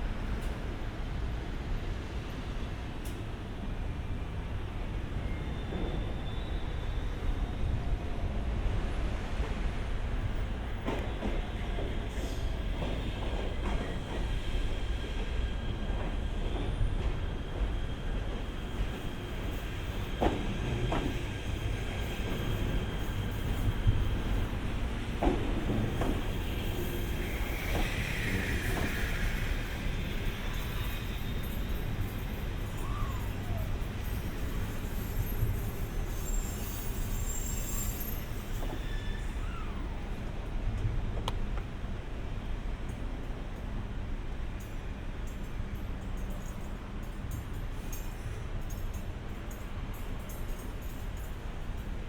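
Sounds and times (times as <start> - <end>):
train high whine: 0.0 - 52.0
train low rumble: 0.0 - 52.0.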